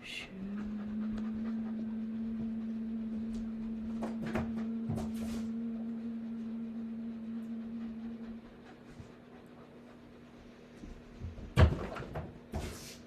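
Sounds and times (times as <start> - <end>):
person humming low note: 0.0 - 8.9.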